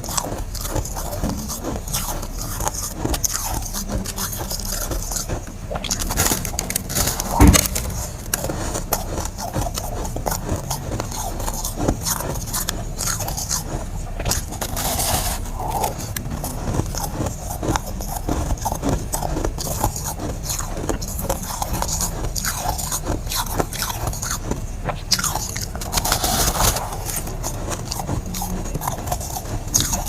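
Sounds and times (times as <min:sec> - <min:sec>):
frost crackling crunch: 0:00.0 - 0:30.0
loud knock: 0:07.3 - 0:08.0.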